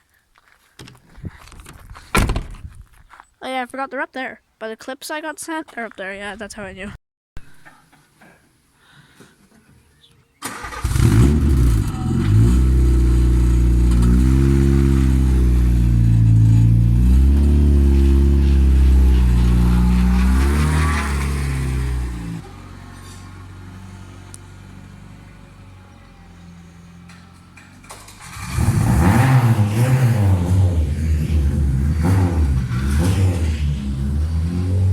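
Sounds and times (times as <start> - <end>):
car engine revving: 10.5 - 22.8, 27.8 - 34.9.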